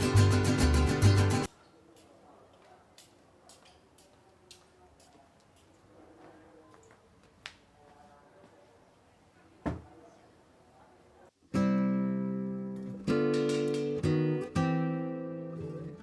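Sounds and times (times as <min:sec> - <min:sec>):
strummed acoustic guitar chords: 0:00.0 - 0:01.5, 0:11.6 - 0:16.0.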